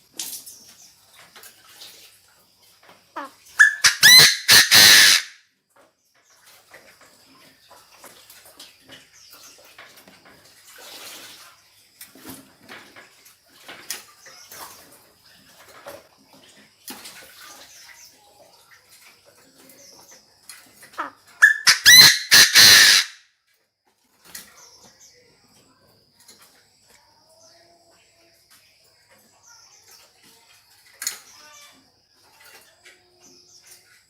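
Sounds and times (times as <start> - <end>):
bird calling quick notes: 3.6 - 5.3, 21.4 - 23.1
faint steady high tone: 24.3 - 34.0.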